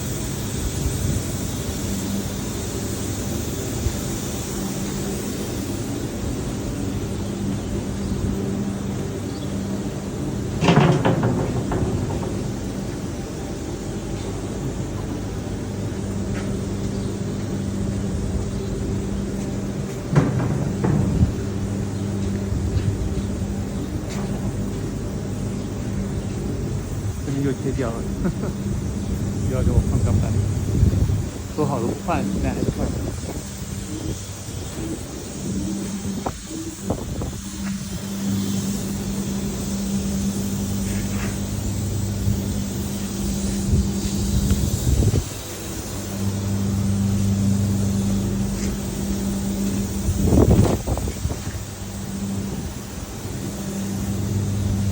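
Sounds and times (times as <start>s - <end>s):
machinery hum: 0.0s - 54.9s
sharp knocks or clanks: 10.5s - 13.6s, 19.9s - 23.0s.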